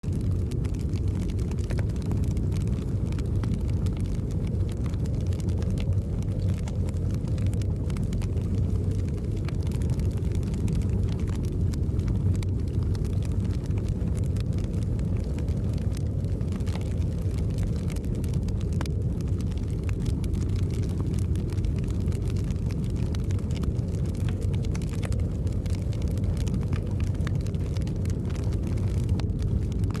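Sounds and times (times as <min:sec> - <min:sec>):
fire crackling in fireplace: 0:00.0 - 0:30.0
snowstorm wind rumbling: 0:00.0 - 0:30.0.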